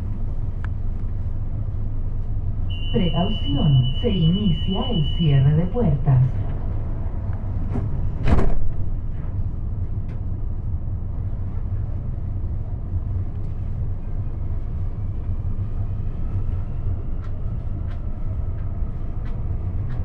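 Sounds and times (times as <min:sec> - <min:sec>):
train rumbling: 0:00.0 - 0:20.0
train doors shutting: 0:07.4 - 0:09.3.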